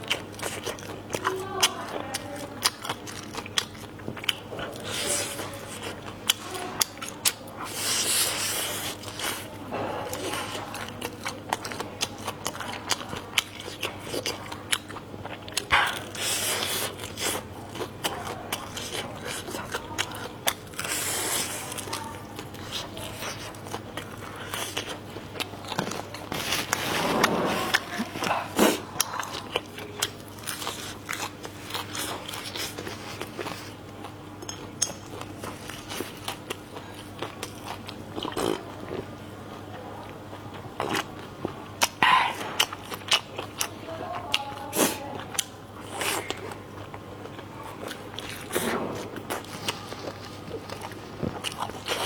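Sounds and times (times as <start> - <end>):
person chewing food: 0.0 - 52.0
person biting and chewing food: 47.8 - 52.0.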